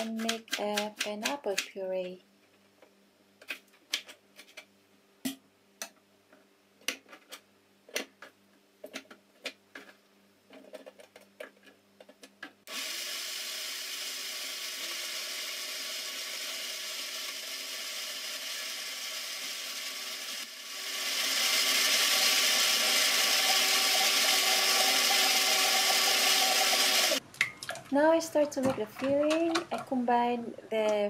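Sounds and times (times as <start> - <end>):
blender motor pureeing: 12.7 - 27.2.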